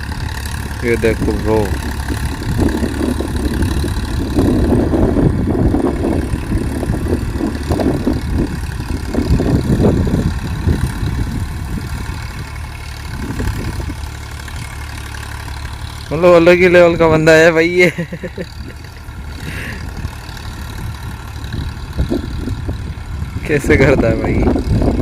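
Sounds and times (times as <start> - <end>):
tractor diesel engine labouring: 0.0 - 25.0.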